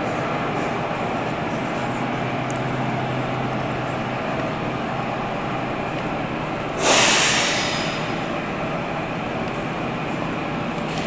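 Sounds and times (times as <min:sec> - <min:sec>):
train rumble: 0:00.0 - 0:11.0
loud hiss of air: 0:06.7 - 0:08.3.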